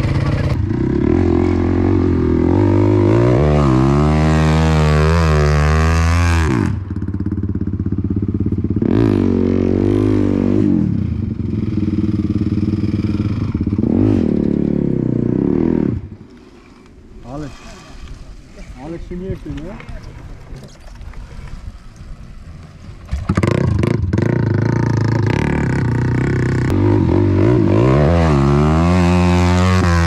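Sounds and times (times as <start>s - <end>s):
off-road vehicle engine revving: 0.0s - 7.2s, 8.7s - 16.1s, 23.3s - 30.0s.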